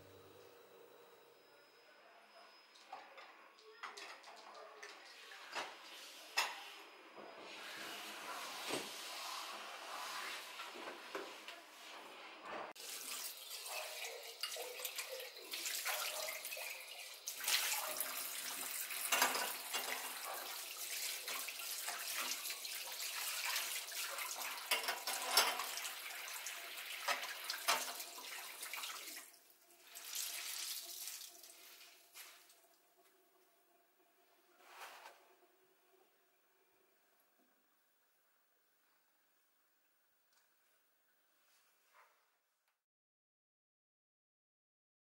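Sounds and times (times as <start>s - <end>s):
tap water splashing into sink: 27.0s - 29.2s.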